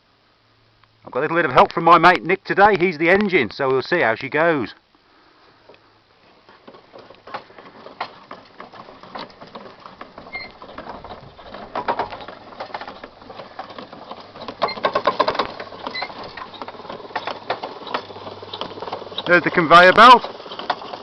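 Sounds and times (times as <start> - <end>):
hand-cranked machine clattering: 6.4 - 21.0.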